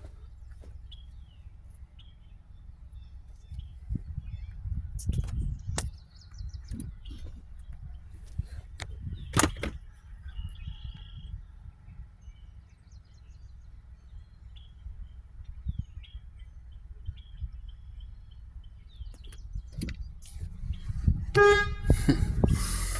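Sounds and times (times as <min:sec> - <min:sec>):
wind rumble on microphone: 0:02.0 - 0:22.9
faint bird chirps and whistles: 0:10.2 - 0:19.8.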